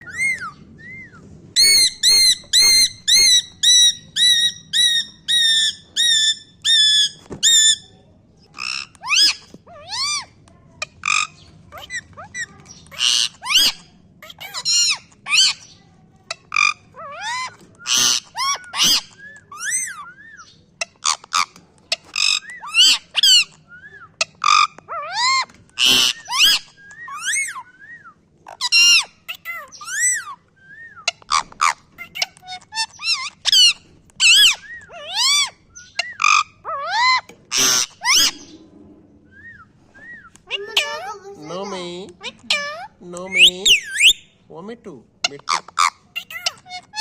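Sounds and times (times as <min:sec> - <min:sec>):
parrot barking calls: 0:31.0 - 0:39.3, 0:40.3 - 0:44.3, 0:45.3 - 0:47.0.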